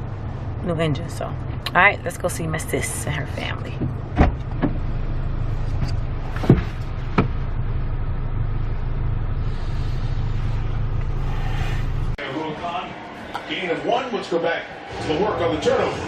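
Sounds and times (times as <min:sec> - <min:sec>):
car interior rumble: 0:00.0 - 0:12.2.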